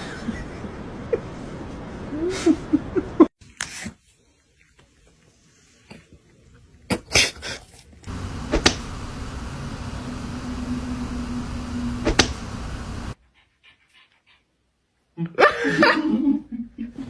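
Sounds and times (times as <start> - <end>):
knocks: 8.1 - 13.2
machine hum: 8.1 - 13.2
sharp click: 8.1 - 13.2.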